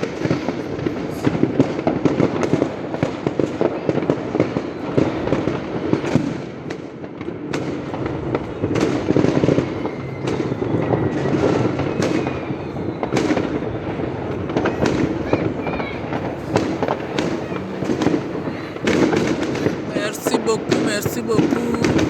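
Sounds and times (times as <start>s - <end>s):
fireworks bangs and crackles: 0.0s - 22.0s
faint firework whistle: 8.4s - 19.9s.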